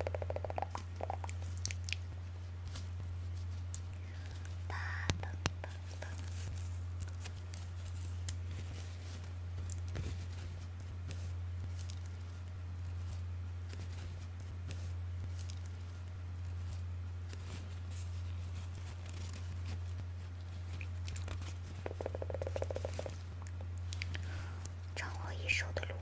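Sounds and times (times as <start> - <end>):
steady low hum: 0.0 - 26.0
soft crackles and rustles: 0.4 - 26.0.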